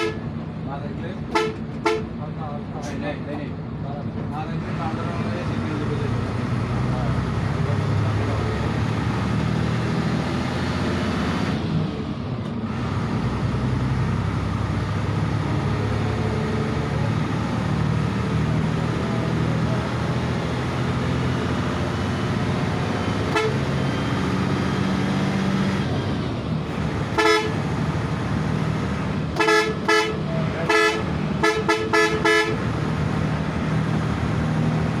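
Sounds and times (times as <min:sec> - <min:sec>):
bus horn honks: 0:00.0 - 0:00.4, 0:01.3 - 0:02.2, 0:23.2 - 0:24.3, 0:27.1 - 0:27.8, 0:29.3 - 0:32.8
bus diesel engine running: 0:00.0 - 0:35.0.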